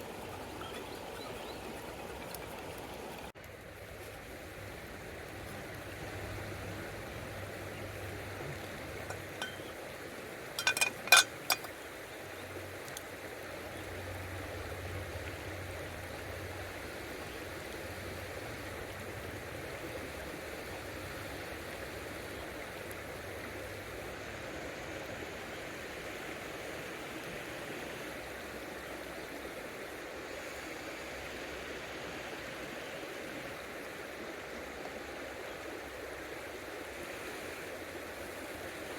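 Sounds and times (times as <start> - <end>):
river water flowing: 0.0 - 38.9
metallic clinks: 9.1 - 9.8, 10.6 - 11.7.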